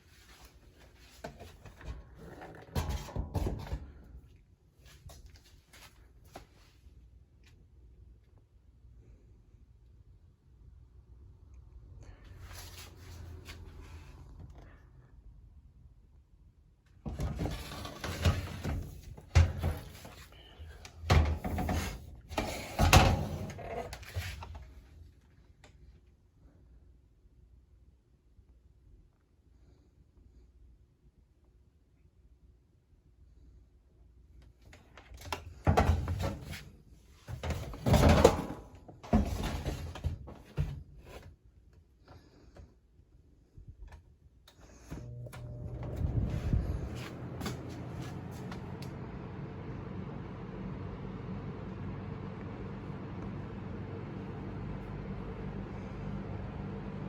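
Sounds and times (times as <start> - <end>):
fan motor humming: 44.8 - 57.0
fan being handled: 45.8 - 48.9.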